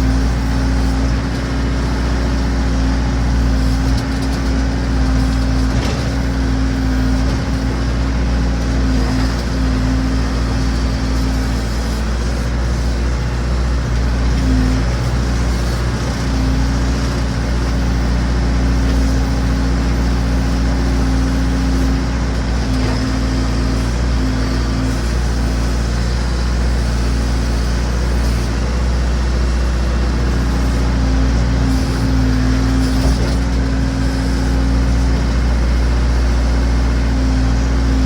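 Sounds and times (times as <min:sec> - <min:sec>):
backhoe engine running: 0:00.0 - 0:38.0.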